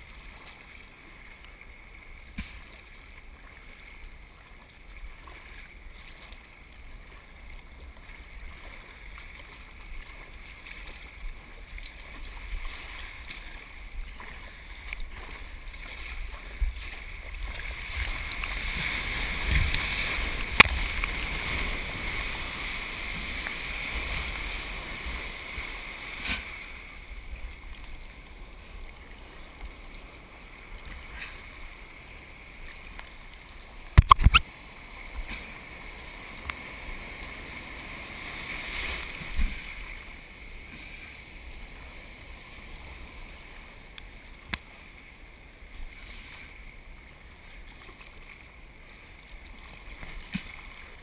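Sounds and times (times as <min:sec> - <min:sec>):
water rushing around kayak: 0:00.0 - 0:51.0
wind rumble on microphone: 0:10.8 - 0:25.6.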